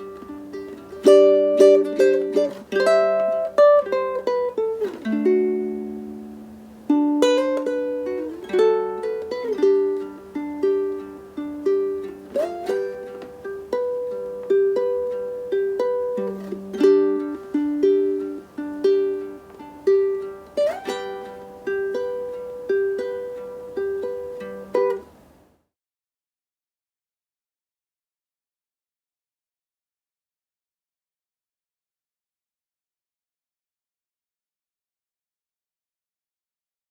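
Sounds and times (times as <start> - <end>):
ukulele fingerpicking: 0.0 - 25.4.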